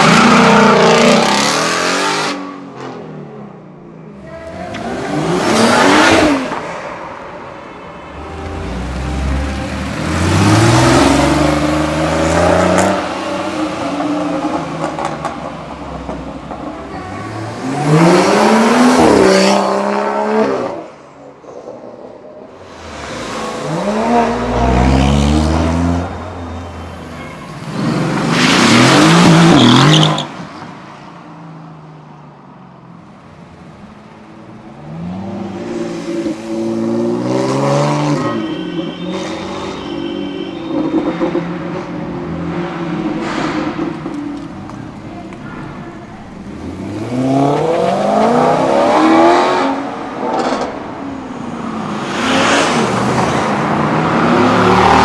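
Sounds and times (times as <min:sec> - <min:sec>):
sports cars accelerating: 0:04.4 - 0:06.9, 0:08.0 - 0:15.9, 0:17.3 - 0:20.9, 0:22.7 - 0:26.8, 0:46.4 - 0:55.0.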